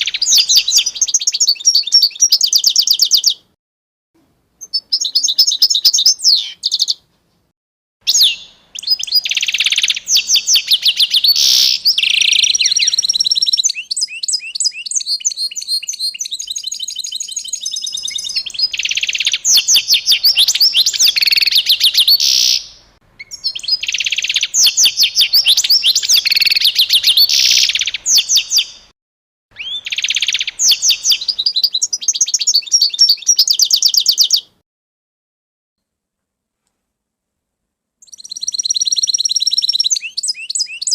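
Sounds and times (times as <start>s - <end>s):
songbird singing trills: 0.0s - 3.5s, 4.6s - 7.0s, 8.1s - 28.9s, 29.5s - 34.6s, 38.0s - 40.9s.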